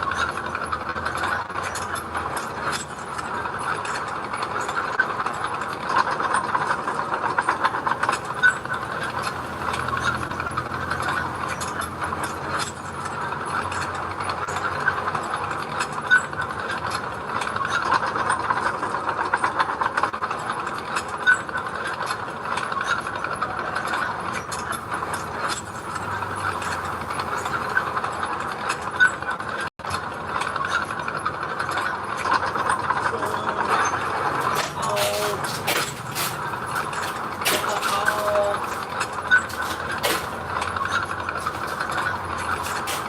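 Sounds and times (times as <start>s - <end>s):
diesel engine running: 0.0s - 17.3s, 23.4s - 29.4s, 32.0s - 43.0s
metallic clanks of tracks: 0.0s - 43.0s.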